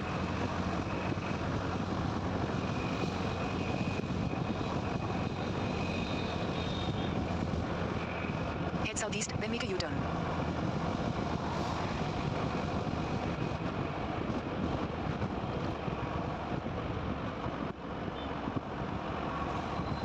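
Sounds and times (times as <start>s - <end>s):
motorcycle engine: 0.0s - 8.8s
road noise: 0.0s - 20.0s.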